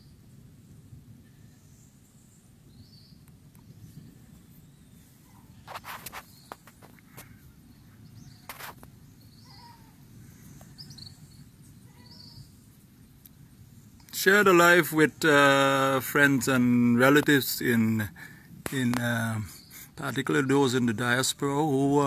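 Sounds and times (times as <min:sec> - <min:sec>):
low outdoor rumble: 0:00.0 - 0:22.0
scuffs or knocks: 0:05.7 - 0:07.3, 0:08.4 - 0:08.8.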